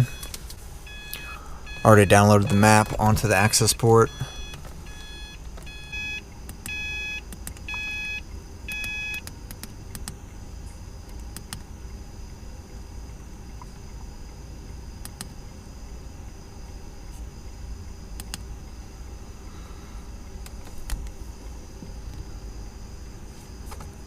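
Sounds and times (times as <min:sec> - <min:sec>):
electronic beeps: 0:00.0 - 0:00.3, 0:00.9 - 0:09.2.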